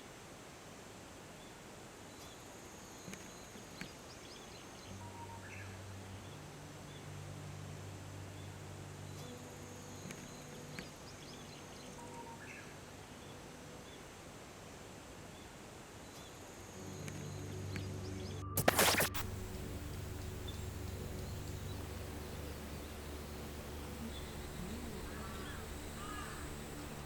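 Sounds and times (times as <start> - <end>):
steady background hiss: 0.0 - 27.0
soft low background music: 2.8 - 15.5, 16.4 - 27.0
faint bird chirps: 8.2 - 14.1, 15.3 - 27.0
thin high whine: 16.6 - 27.0.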